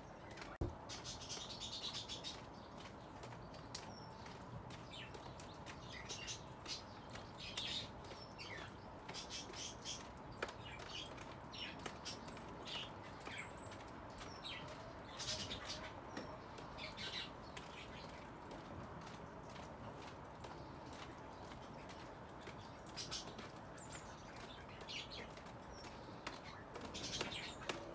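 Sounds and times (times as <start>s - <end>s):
birds chirping: 0.0s - 27.9s.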